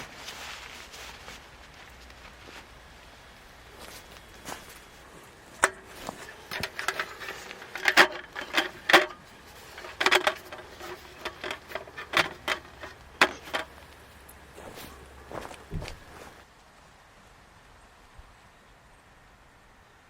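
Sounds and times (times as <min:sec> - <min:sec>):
hard objects knocking and clattering: 0:05.6 - 0:16.4.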